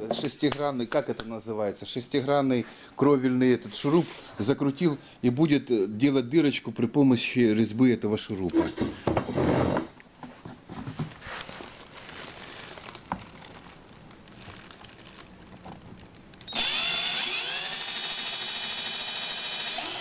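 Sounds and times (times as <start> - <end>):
cordless drill whining: 16.5 - 20.0.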